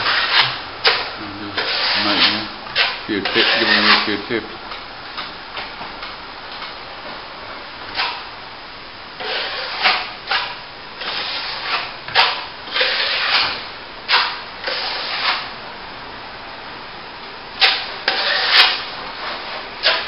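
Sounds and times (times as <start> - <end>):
trowel scraping wet plaster: 0.0 - 4.2, 9.2 - 15.5, 17.6 - 20.0.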